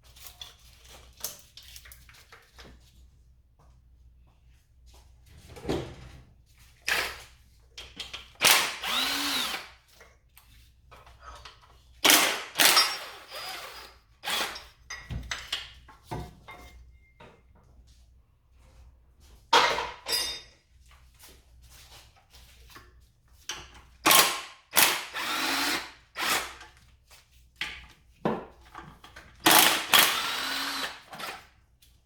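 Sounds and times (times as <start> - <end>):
handheld power tool bursts: 8.4 - 9.8, 12.0 - 14.7, 24.0 - 26.6, 29.4 - 31.5.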